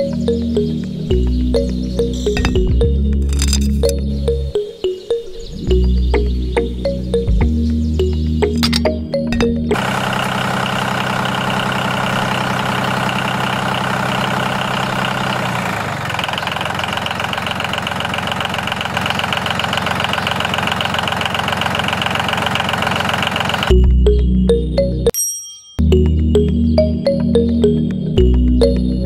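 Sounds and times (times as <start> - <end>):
motor running: 9.7 - 23.8.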